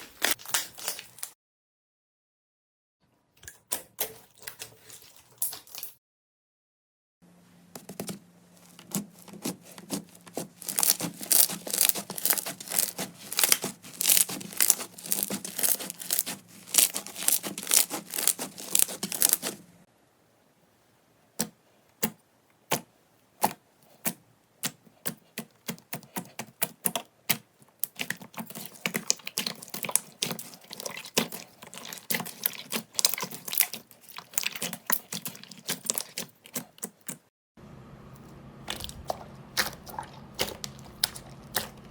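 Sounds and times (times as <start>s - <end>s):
slime crackling and popping: 8.9s - 19.6s, 27.8s - 36.3s.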